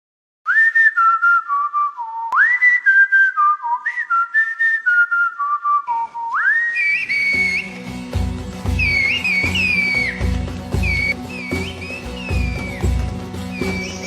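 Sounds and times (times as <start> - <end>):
person whistling a tune: 0.5 - 7.9, 10.8 - 14.0.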